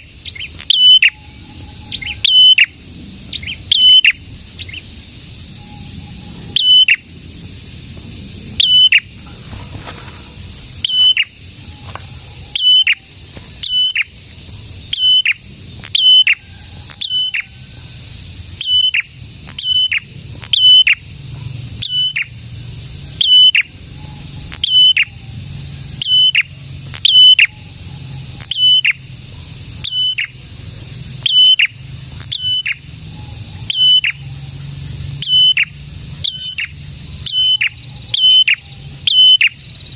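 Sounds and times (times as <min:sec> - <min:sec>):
bird calling sharp high notes: 0:00.0 - 0:04.9.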